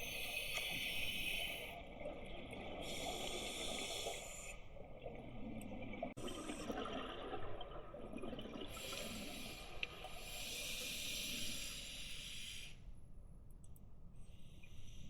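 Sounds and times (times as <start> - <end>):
exhaled bubbles gurgling: 0.0 - 11.5
regulator air hiss: 8.9 - 12.8.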